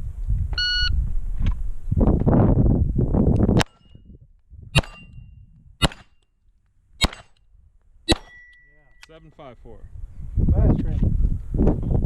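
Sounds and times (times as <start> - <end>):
pistol shots: 4.8 - 5.1, 5.8 - 6.2, 7.0 - 7.4, 8.1 - 8.5
shot timer beep: 8.1 - 9.1
steel target ringing: 8.1 - 9.2.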